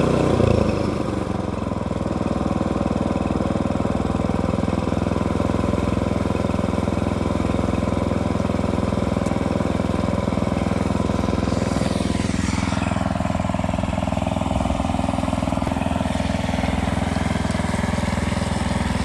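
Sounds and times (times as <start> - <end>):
sawmill engine running: 0.0 - 19.0.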